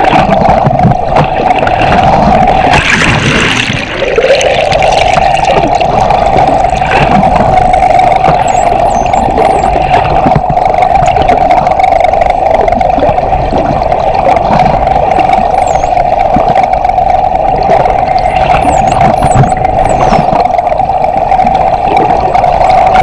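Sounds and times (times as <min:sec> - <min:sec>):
rush of water: 0:00.0 - 0:23.0
underwater boat engine hum: 0:00.0 - 0:23.0
dolphin whistles: 0:08.3 - 0:09.7, 0:15.2 - 0:16.0, 0:18.2 - 0:20.3.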